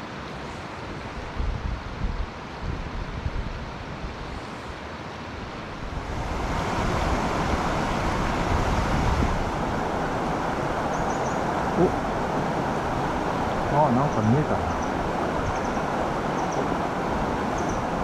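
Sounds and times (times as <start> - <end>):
stream water rushing: 0.0 - 18.0
wind buffeting microphone: 5.7 - 18.0.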